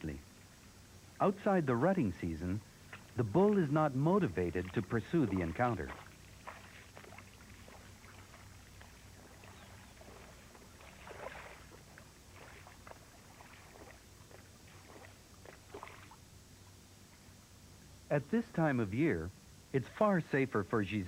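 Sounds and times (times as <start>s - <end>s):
water splashing: 2.8s - 16.2s.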